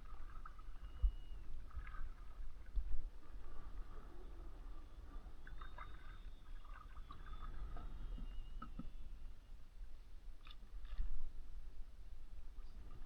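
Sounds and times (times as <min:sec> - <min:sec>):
faint water drips: 0:00.0 - 0:08.9.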